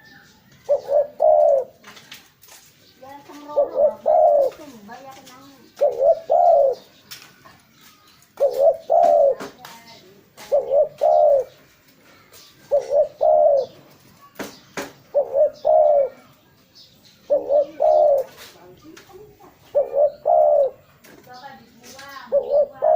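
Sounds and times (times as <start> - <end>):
dove cooing: 0.0 - 2.0, 3.2 - 7.0, 8.4 - 14.0, 15.1 - 16.4, 17.2 - 21.0, 21.8 - 22.9.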